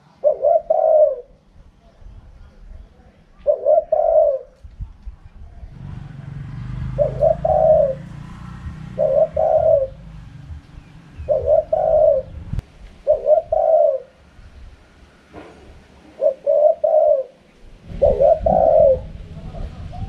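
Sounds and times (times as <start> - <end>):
dove cooing: 0.0 - 1.5, 3.3 - 4.7, 5.6 - 14.4, 16.0 - 20.0
low rumble: 4.6 - 13.5, 17.7 - 20.0.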